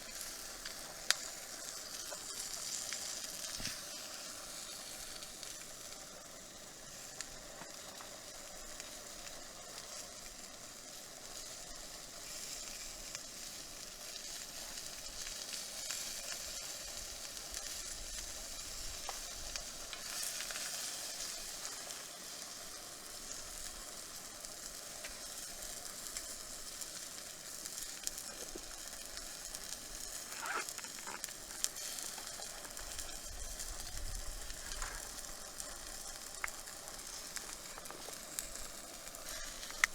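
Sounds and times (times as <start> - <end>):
faint clicks and crackles: 0.0 - 11.8, 12.4 - 39.9
campfire sizzling: 0.0 - 39.9.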